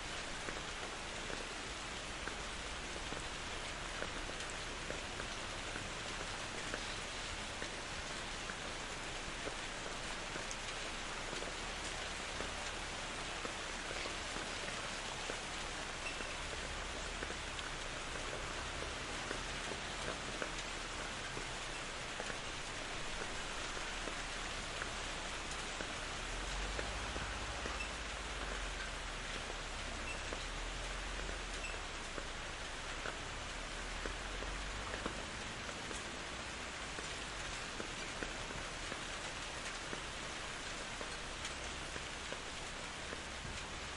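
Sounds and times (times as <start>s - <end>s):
raindrops landing on leaves: 0.0s - 43.9s
steady rain hiss: 0.0s - 43.9s.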